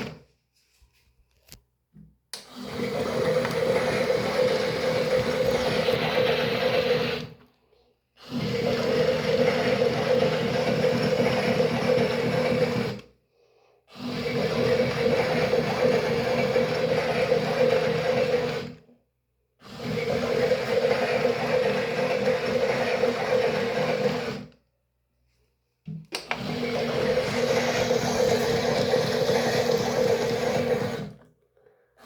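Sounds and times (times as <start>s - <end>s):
small motor whirring hum: 2.6s - 7.4s, 26.3s - 31.2s.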